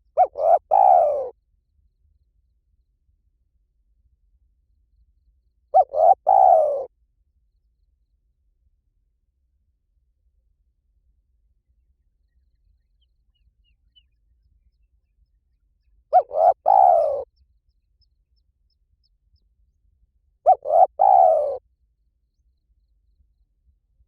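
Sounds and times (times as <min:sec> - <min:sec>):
dove cooing: 0:00.0 - 0:01.4, 0:05.7 - 0:06.9, 0:16.1 - 0:17.3, 0:20.5 - 0:21.6.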